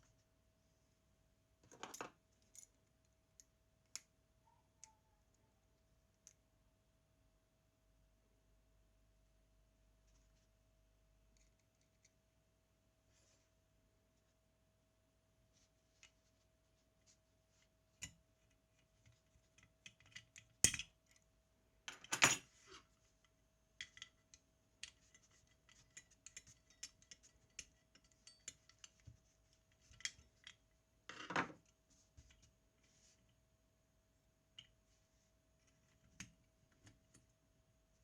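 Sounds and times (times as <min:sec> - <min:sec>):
small metal tools clicking: 0:23.8 - 0:29.0.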